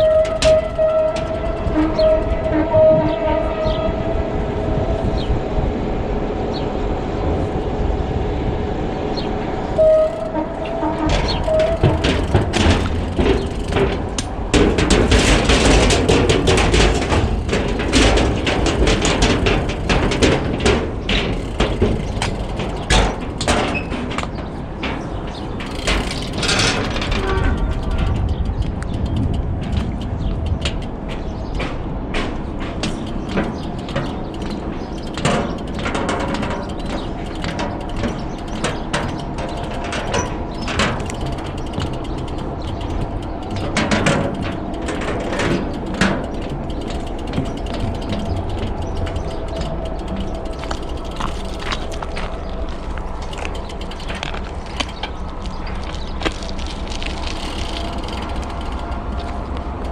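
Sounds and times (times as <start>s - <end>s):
bike freewheel ticking: 0.0s - 3.0s, 9.8s - 24.3s, 25.0s - 31.6s, 32.8s - 59.9s
bike clicks and rattles: 0.0s - 59.9s.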